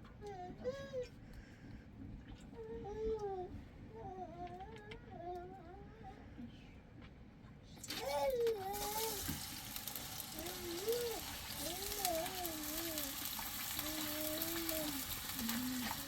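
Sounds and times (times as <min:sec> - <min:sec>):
food sizzling in hot oil: 0:08.7 - 0:16.0.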